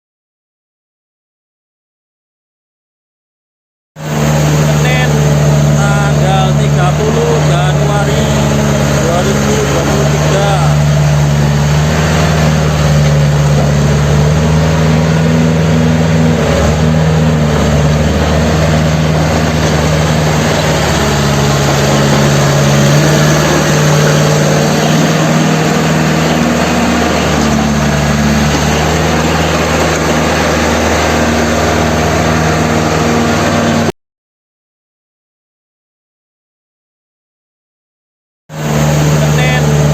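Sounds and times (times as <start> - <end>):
bulldozer diesel engine running: 4.0 - 33.9, 38.5 - 39.9.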